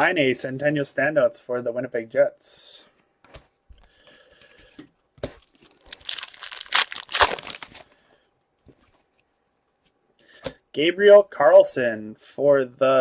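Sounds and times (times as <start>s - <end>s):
wrapper crinkling and tearing: 5.4s - 8.0s
wrapper rustle: 5.4s - 8.0s.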